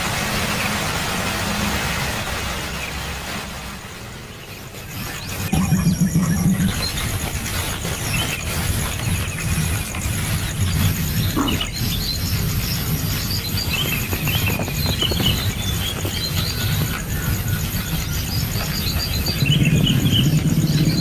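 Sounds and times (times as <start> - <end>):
bird chirps: 4.4 - 9.6, 10.2 - 21.0
low rumble: 5.5 - 8.0, 8.6 - 21.0
high insect drone: 5.5 - 21.0.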